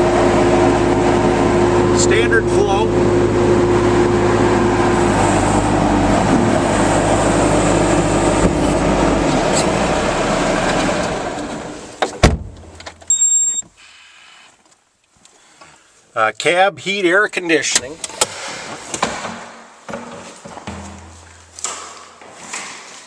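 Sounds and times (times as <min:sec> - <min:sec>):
diesel engine running: 0:00.0 - 0:12.0
short high electronic beep: 0:13.1 - 0:13.6.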